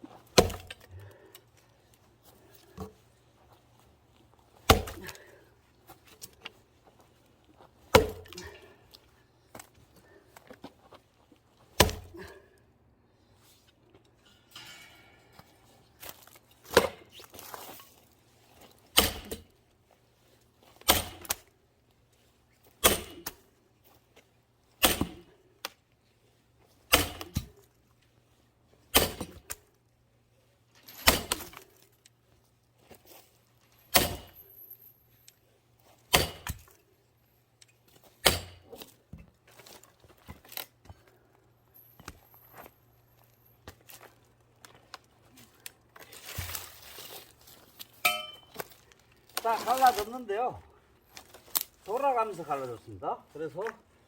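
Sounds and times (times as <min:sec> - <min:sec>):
heavy blows splitting log: 0:00.4 - 0:01.1, 0:04.6 - 0:05.3, 0:07.9 - 0:08.6, 0:11.8 - 0:12.3, 0:18.9 - 0:19.5, 0:20.8 - 0:21.4, 0:22.8 - 0:23.4, 0:24.8 - 0:25.3, 0:26.9 - 0:27.6, 0:28.9 - 0:29.4, 0:33.9 - 0:34.4, 0:36.1 - 0:36.7, 0:38.2 - 0:38.8.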